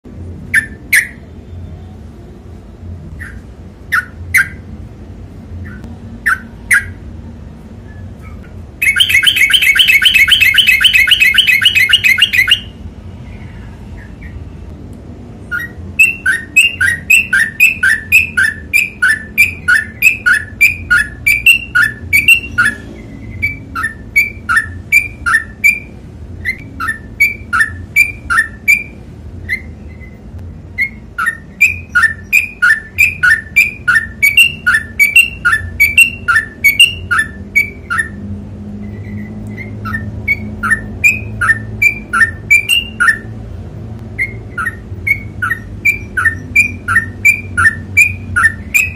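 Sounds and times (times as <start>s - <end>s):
bird fast trill: 7.9s - 12.8s, 15.5s - 38.2s, 38.8s - 43.4s, 44.2s - 48.9s.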